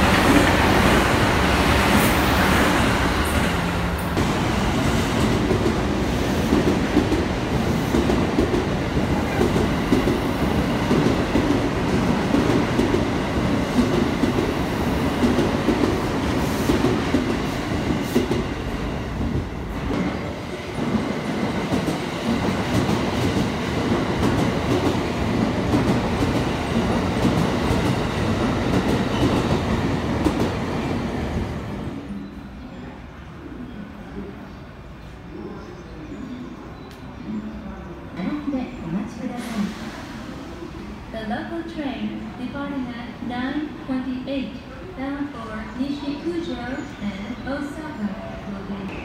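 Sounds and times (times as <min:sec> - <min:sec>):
train rumble: 0:00.0 - 0:31.9.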